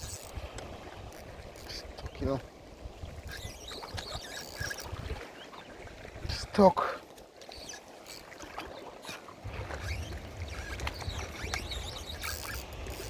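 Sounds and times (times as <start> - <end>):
wind rumbling on microphone: 0.0 - 6.6, 9.4 - 13.0
sea water washing: 0.0 - 13.0.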